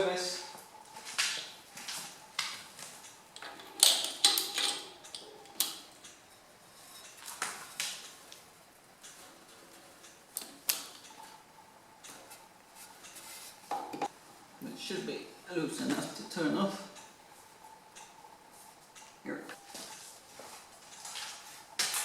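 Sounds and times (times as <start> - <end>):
metal tools clicking and clanking: 3.4 - 6.2.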